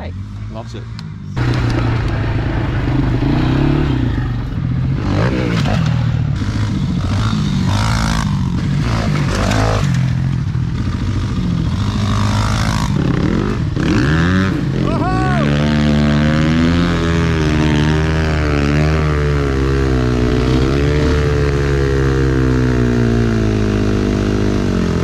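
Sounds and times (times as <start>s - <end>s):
dirt bike engine revving: 0.0s - 25.0s
clatter: 5.0s - 13.4s.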